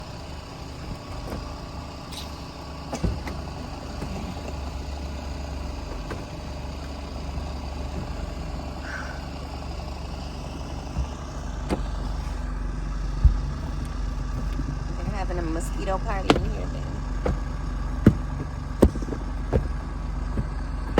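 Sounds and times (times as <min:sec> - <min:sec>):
vehicle engine rumbling: 0:00.0 - 0:20.9.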